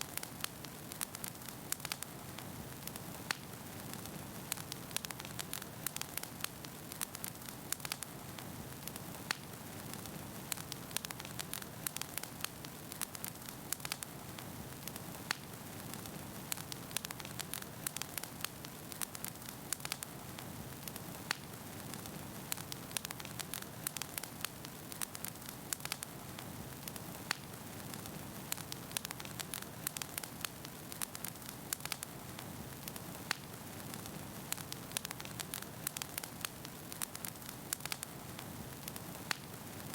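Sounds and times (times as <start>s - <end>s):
firewood crackling and popping: 0.0s - 39.9s
fire hissing: 0.1s - 39.9s.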